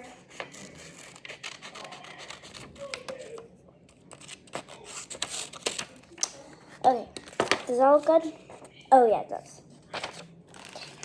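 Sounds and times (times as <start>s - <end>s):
paper rustling: 0.2s - 8.8s, 9.8s - 11.0s
scissors snipping paper: 0.3s - 3.4s.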